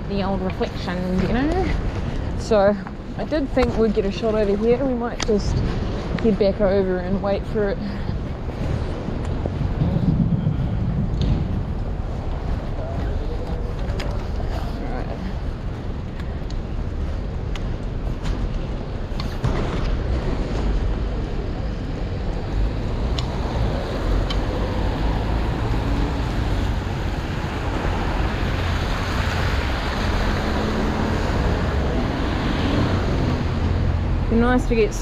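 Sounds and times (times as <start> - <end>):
wind buffeting microphone: 0.0 - 35.0
rain: 7.8 - 17.6, 19.4 - 35.0.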